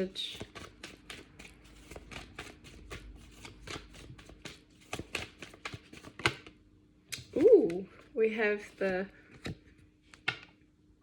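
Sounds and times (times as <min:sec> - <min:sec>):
cards shuffled by hand: 0:00.3 - 0:06.6.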